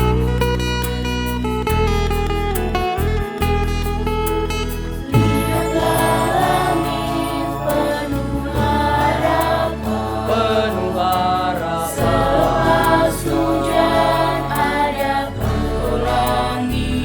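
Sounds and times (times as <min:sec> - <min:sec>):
low musical accompaniment: 0:00.0 - 0:17.0
choir singing in parts: 0:05.2 - 0:17.0.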